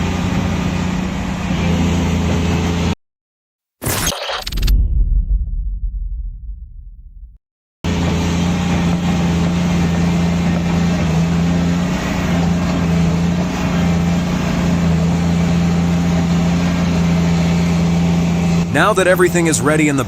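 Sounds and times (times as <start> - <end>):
diesel engine humming: 0.0 - 3.0, 7.9 - 20.0.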